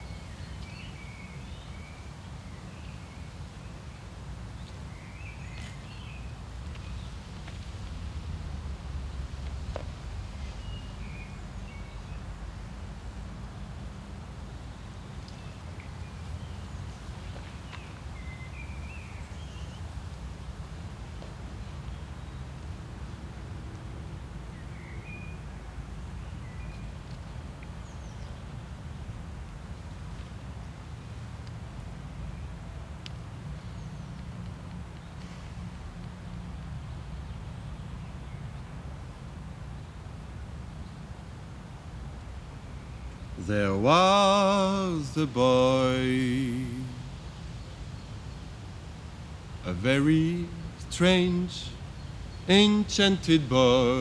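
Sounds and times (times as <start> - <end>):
low outdoor rumble: 5.6 - 14.0, 41.7 - 54.0
birds chirping: 43.4 - 47.8, 49.6 - 54.0.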